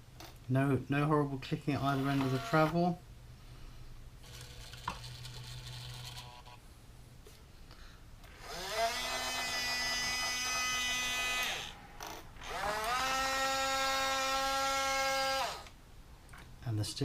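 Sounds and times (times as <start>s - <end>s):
small electric motor whining: 1.9s - 2.8s, 8.2s - 15.8s.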